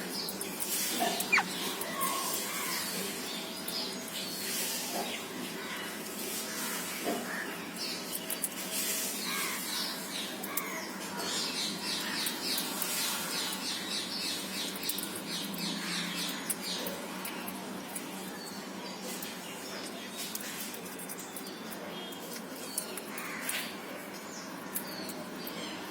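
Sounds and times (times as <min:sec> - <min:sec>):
baby parrots squawking: 0:01.0 - 0:02.8.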